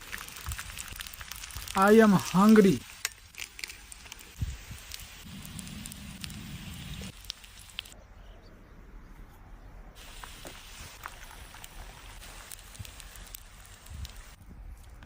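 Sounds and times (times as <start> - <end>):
food sizzling: 0.0 - 8.0, 10.0 - 14.4
small pops: 10.0 - 15.0.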